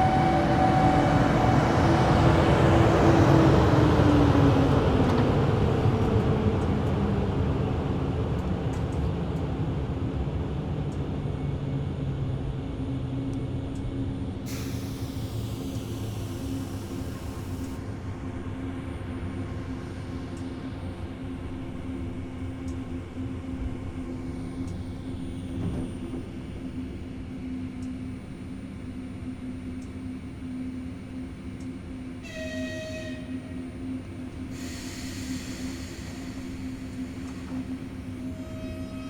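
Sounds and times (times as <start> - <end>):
electric train running: 0.0 - 9.5, 14.5 - 39.0
high hiss: 34.5 - 38.2.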